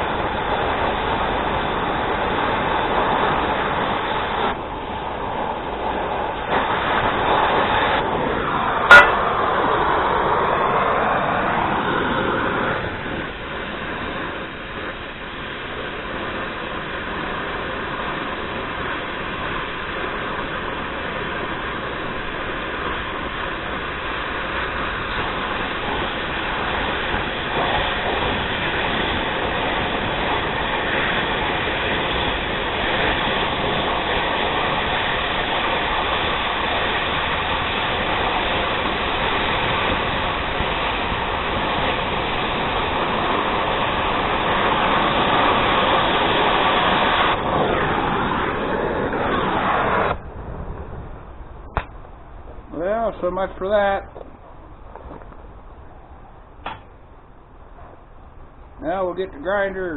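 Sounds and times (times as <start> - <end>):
steel being cut: 0.0 - 10.5.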